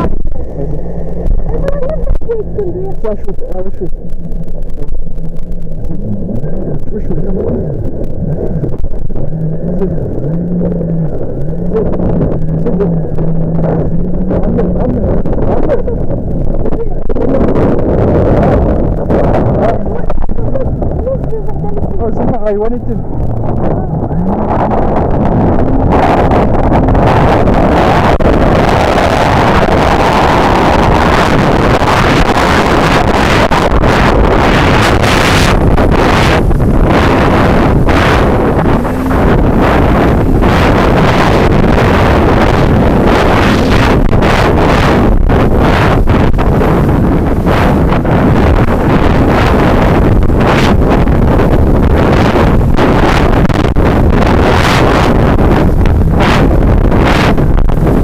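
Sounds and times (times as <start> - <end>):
water rushing: 0.0 - 58.0
wind buffeting microphone: 0.0 - 58.0
jet ski engine revving: 23.2 - 58.0.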